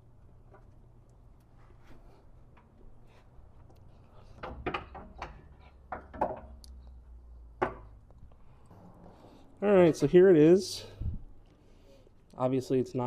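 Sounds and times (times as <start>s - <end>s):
clunks of parts and tools: 4.3s - 6.6s.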